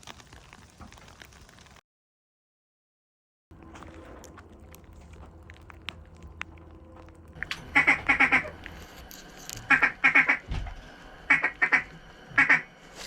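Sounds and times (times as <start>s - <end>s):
duck quacking: 7.4s - 8.7s, 9.6s - 10.5s, 11.3s - 12.7s.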